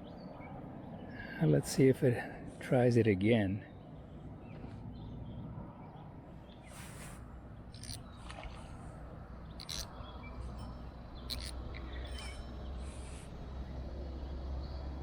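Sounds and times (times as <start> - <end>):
bird chirps: 7.6 - 8.3, 9.4 - 13.3.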